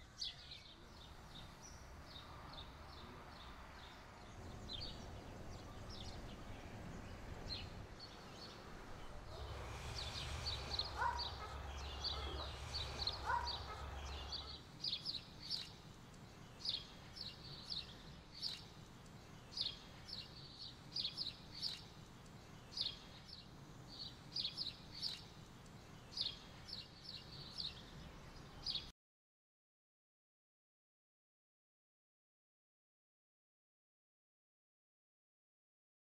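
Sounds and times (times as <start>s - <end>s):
low steady hum: 0.8s - 14.8s
small bird chirping: 9.4s - 28.9s.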